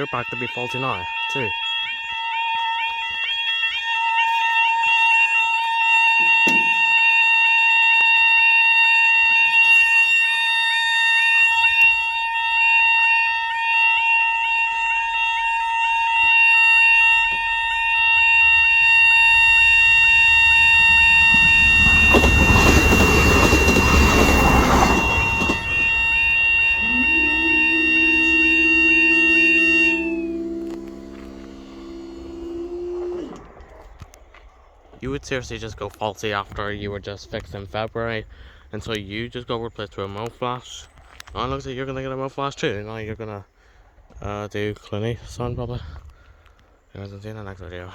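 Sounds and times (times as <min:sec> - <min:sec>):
level crossing alarm warbling: 0:13.1 - 0:33.8
train passing with loud rush: 0:18.4 - 0:33.7.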